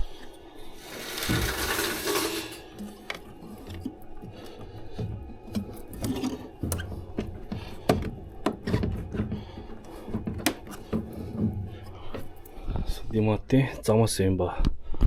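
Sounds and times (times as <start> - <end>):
tools and metal parts rattling: 0.8 - 2.8.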